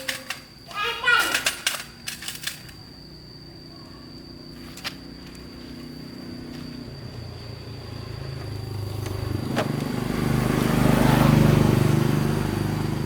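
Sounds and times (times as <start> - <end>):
motorcycle passing by: 5.6 - 13.0.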